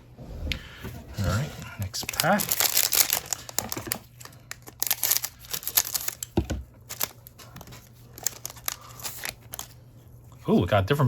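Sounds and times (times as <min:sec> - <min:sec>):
plastic wrapper tearing and crinkling: 0:01.9 - 0:09.8.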